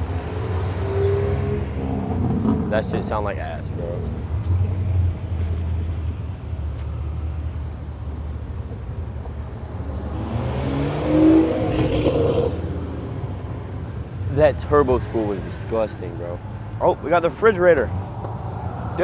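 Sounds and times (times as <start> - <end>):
car engine revving: 0.0 - 6.0, 9.6 - 13.0.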